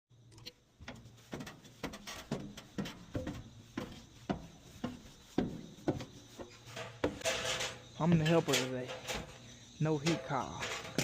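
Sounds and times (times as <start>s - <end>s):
footsteps on hard floor: 0.8s - 7.2s.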